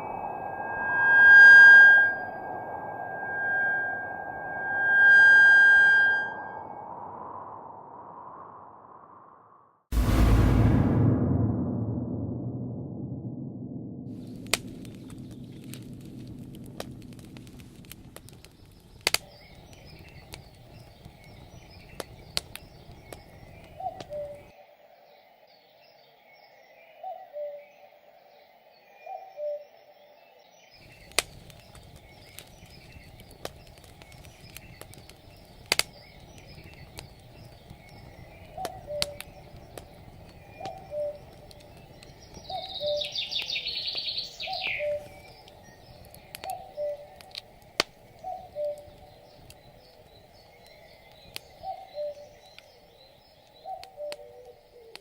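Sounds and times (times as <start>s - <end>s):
faint small bird chirping: 30.7s - 47.3s
falling bird trill: 30.9s - 47.4s.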